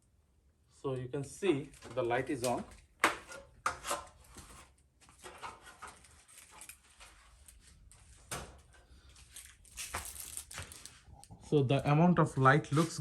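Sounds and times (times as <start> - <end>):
faint rustling and handling: 4.2 - 13.0.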